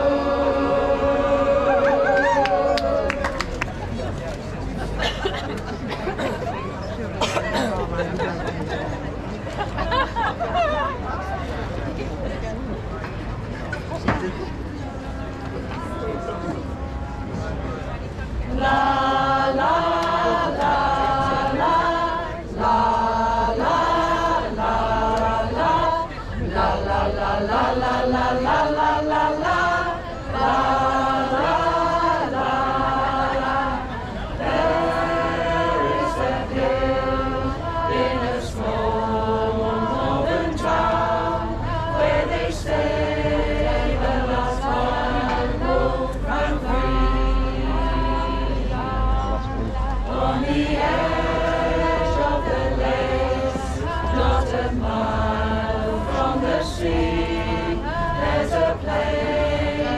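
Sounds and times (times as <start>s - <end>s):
choir singing in harmony: 0.0s - 3.3s, 15.3s - 59.9s.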